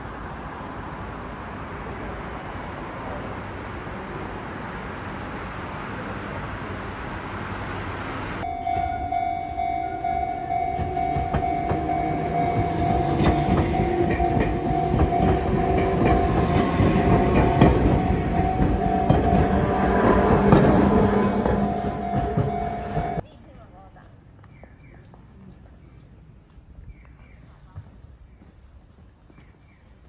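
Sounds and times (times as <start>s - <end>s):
train running on rails: 0.0s - 23.7s
train wheels clicking: 8.6s - 23.2s.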